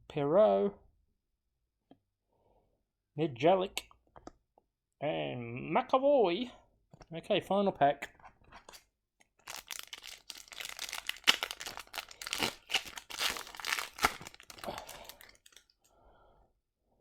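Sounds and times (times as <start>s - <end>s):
wrapper tearing and crinkling: 9.4s - 15.7s.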